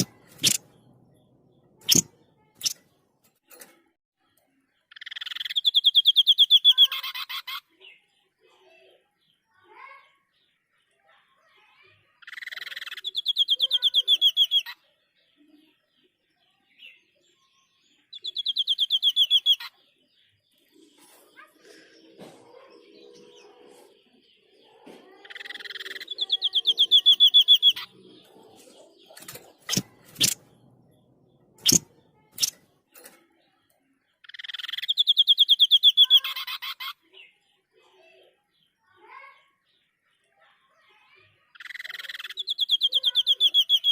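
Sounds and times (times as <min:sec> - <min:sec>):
bird trilling: 0:00.0 - 0:00.7, 0:01.8 - 0:02.8, 0:04.9 - 0:07.6, 0:12.2 - 0:14.8, 0:18.1 - 0:19.7, 0:25.2 - 0:30.5, 0:31.6 - 0:32.6, 0:34.2 - 0:37.0, 0:41.5 - 0:43.9
buzzy bird rattle: 0:00.0 - 0:00.7, 0:29.1 - 0:30.4, 0:31.6 - 0:33.2
sharp clicks: 0:00.0 - 0:00.7, 0:01.8 - 0:02.9, 0:29.1 - 0:30.5, 0:31.6 - 0:33.2.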